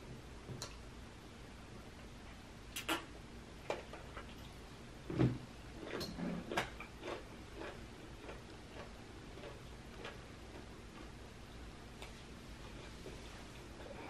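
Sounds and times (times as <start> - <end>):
low mouth sound: 2.7 - 3.1
wet mouth clicks: 2.7 - 3.1
chewing crisp cucumber: 5.8 - 11.3.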